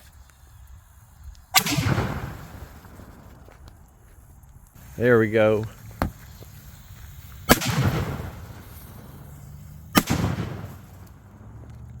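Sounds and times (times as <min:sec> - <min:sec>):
sharp firework bangs: 0:01.6 - 0:03.4, 0:04.8 - 0:12.0.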